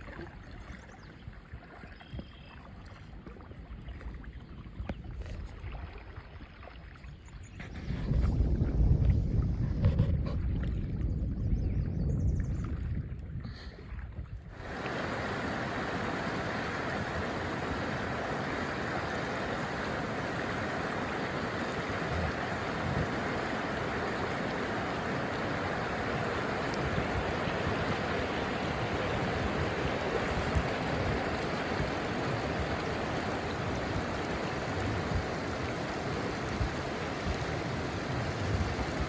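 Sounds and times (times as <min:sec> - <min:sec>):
wind buffeting microphone: 0:00.0 - 0:39.0
whitewater rapids rushing: 0:14.6 - 0:39.0.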